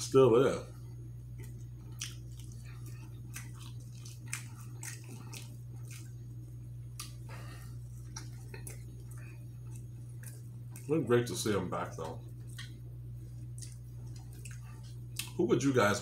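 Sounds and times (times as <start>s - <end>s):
close chewing with mouth clicks: 1.3s - 11.0s, 12.2s - 15.4s.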